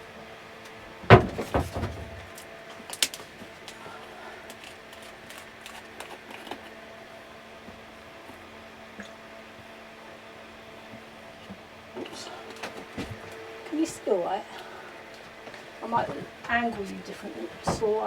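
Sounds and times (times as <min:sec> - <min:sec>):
faint steady hum: 0:00.0 - 0:18.0
objects knocking and clattering: 0:01.0 - 0:02.4, 0:17.6 - 0:18.0.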